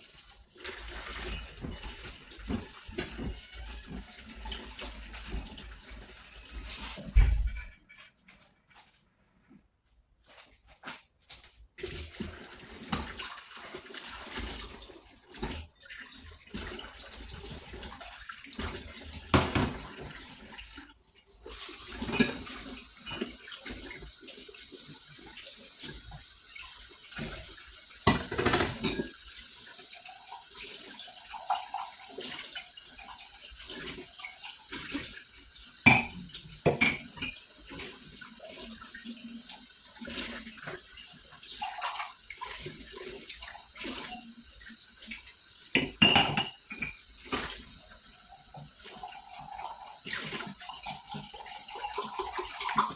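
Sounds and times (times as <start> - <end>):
tap running into a sink: 18.6 - 20.2, 27.2 - 29.2, 35.8 - 37.9, 45.7 - 47.7
plates and pans clinking: 28.1 - 29.2, 35.9 - 37.4, 45.8 - 47.0.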